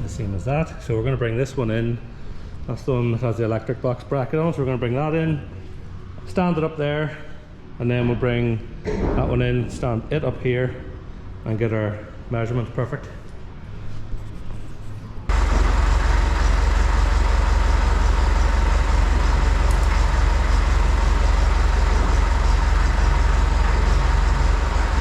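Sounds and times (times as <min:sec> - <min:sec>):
heavy engine rumbling: 0:15.3 - 0:25.0.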